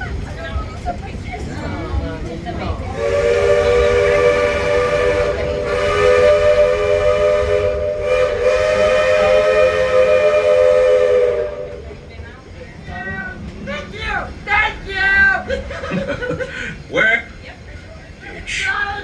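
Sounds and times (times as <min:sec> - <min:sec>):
steam locomotive whistle: 0:02.9 - 0:12.0.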